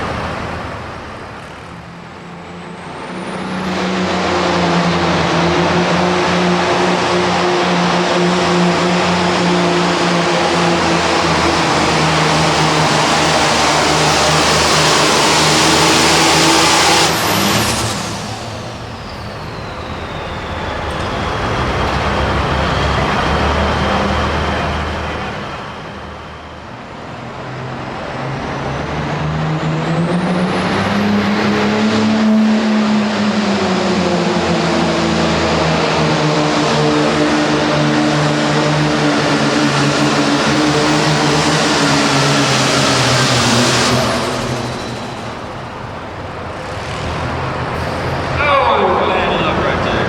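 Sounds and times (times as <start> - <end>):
tractor engine running hard: 0.0 - 50.0
rising turbo whistle: 3.9 - 23.9, 31.7 - 50.0.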